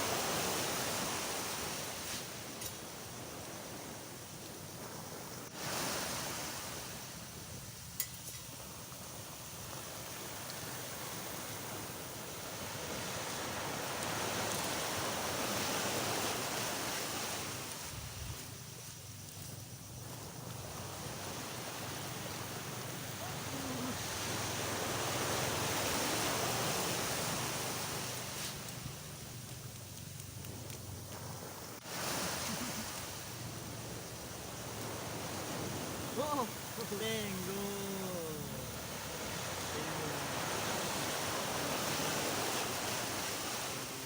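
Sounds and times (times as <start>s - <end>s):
sea waves washing onto beach: 0.0s - 44.0s.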